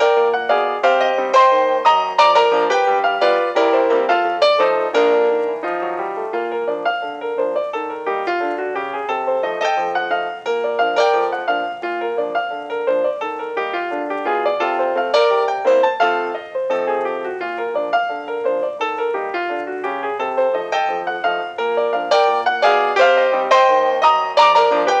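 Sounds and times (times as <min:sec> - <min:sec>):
solo piano music: 0:00.0 - 0:25.0.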